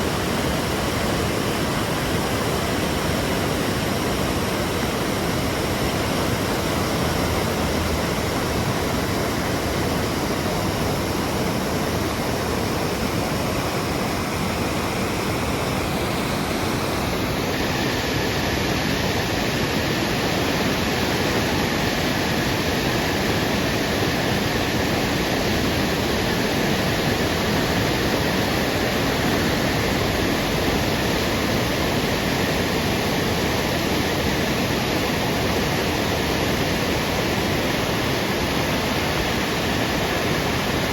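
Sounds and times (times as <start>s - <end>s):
waterfall roaring: 0.0s - 40.9s.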